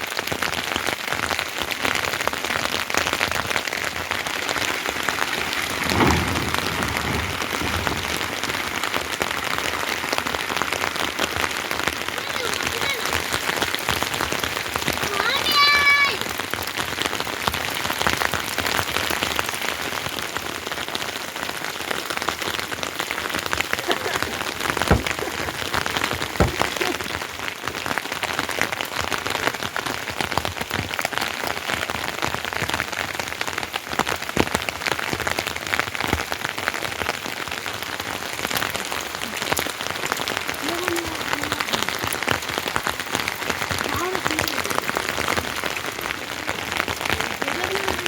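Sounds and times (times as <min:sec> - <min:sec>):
heavy rain falling: 0:00.0 - 0:48.0
loud single drop knocks: 0:24.9 - 0:25.5, 0:26.4 - 0:26.8.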